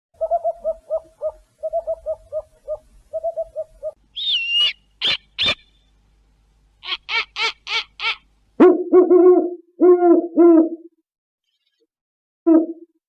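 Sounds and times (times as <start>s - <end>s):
owl screeching: 0.2s - 5.8s
owl hooting: 0.2s - 5.9s, 6.8s - 10.8s.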